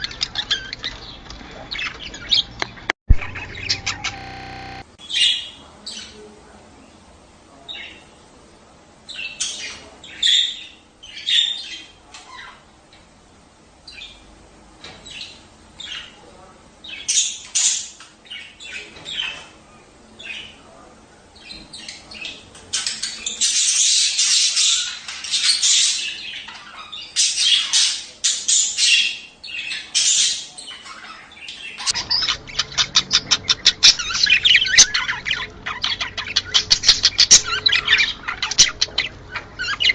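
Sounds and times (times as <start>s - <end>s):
budgerigars chattering: 0.0s - 5.4s, 21.4s - 39.9s.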